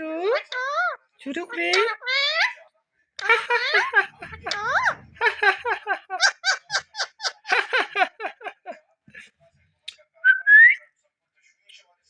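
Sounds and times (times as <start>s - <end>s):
rhythmic laughter: 3.2s - 9.3s.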